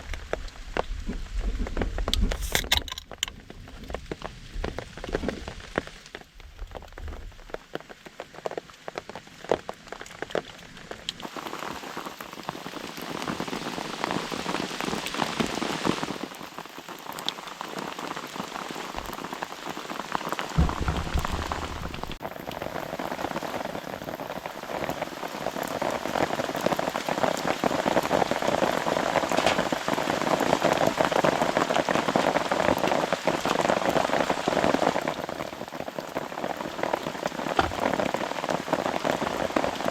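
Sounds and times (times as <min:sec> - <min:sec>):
rain on a tarp: 0:00.0 - 0:39.9
brief low thud: 0:20.6 - 0:22.2, 0:37.6 - 0:38.0.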